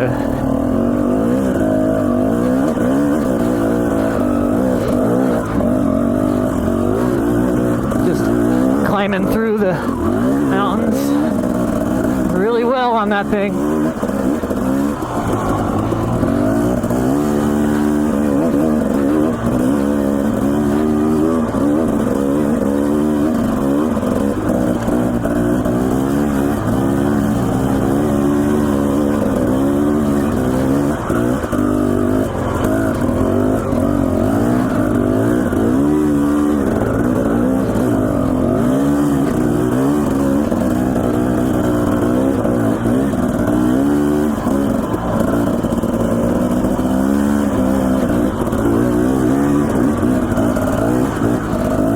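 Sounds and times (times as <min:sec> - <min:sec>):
dirt bike engine revving: 0:00.0 - 0:51.9.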